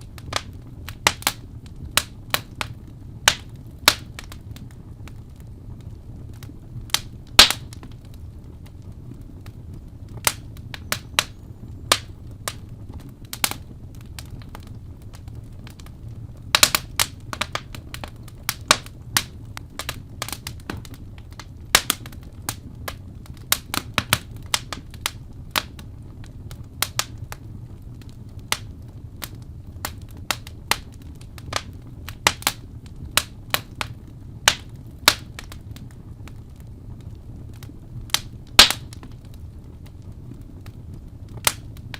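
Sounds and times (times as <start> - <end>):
low steady rumble: 0.0 - 41.9
wood fire crackling: 0.0 - 41.9.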